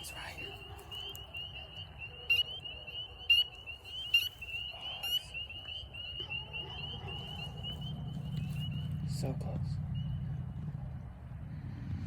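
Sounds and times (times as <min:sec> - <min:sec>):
frogs calling in chorus: 0:00.0 - 0:08.0.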